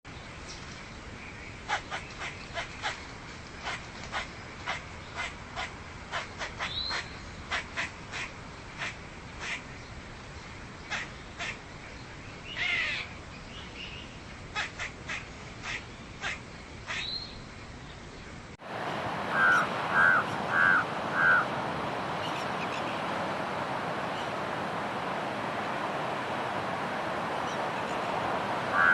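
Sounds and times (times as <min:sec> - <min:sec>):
background hiss: 0:00.1 - 0:28.9
raven cawing: 0:19.3 - 0:21.6, 0:28.6 - 0:28.9.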